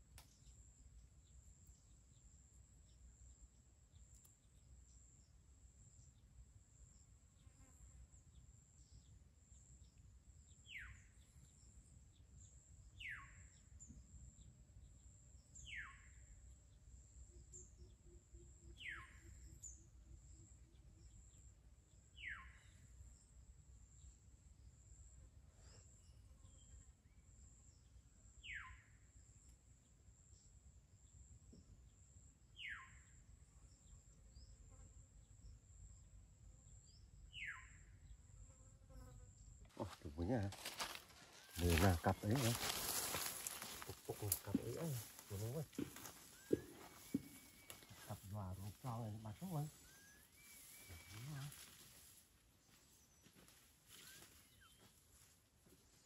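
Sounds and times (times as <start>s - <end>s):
high insect drone: 40.6s - 52.2s.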